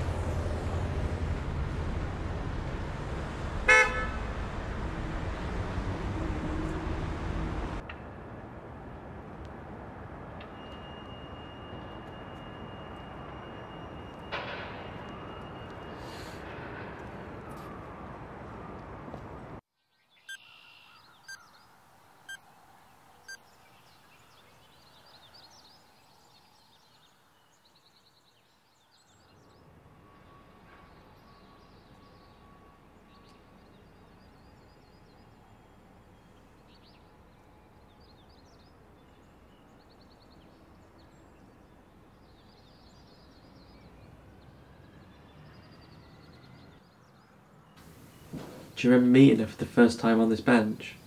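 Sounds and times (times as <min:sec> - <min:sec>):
small birds chirping: 0:19.8 - 0:29.6.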